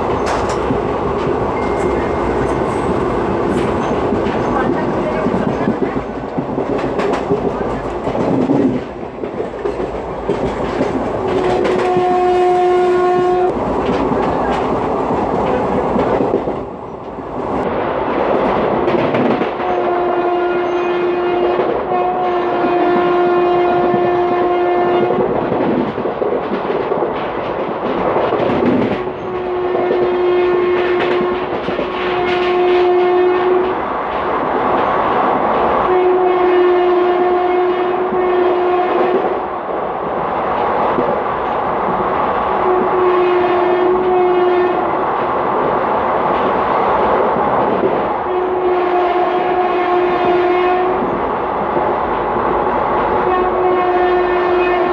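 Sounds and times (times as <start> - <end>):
train wheels clattering on track: 0.0 - 21.9, 23.7 - 35.9, 45.1 - 48.3
locomotive horn blasts: 11.5 - 13.6, 19.6 - 25.2, 29.0 - 31.4, 32.0 - 33.7, 35.9 - 39.2, 42.6 - 44.8, 48.3 - 51.0, 53.2 - 54.9.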